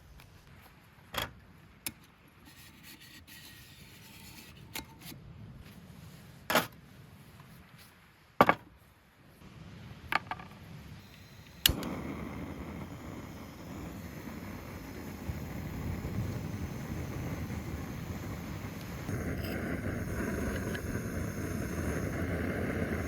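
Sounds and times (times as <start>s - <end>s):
steady hiss: 9.2s - 23.0s.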